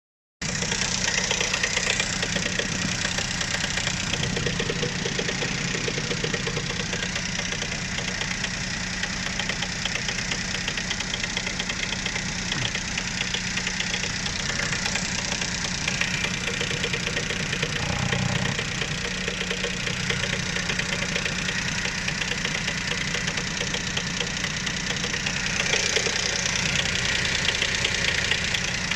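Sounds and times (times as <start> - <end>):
car engine idling with knocking: 0.4 - 28.9.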